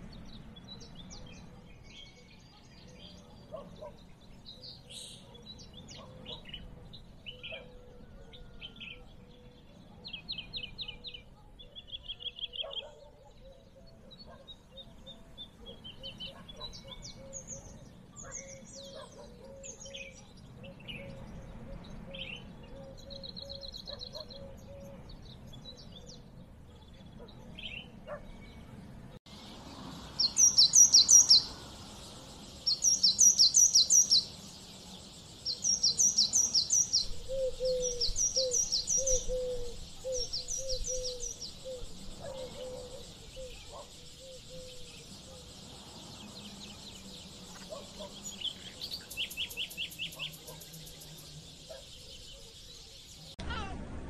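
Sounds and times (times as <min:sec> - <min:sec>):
birds chirping: 0:00.0 - 0:53.6
lower repeated bird call: 0:35.5 - 0:45.4.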